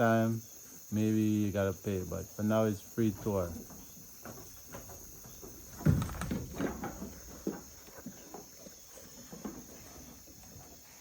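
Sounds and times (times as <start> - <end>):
insects buzzing: 0.0 - 11.0
goats knocking and rustling: 3.0 - 11.0.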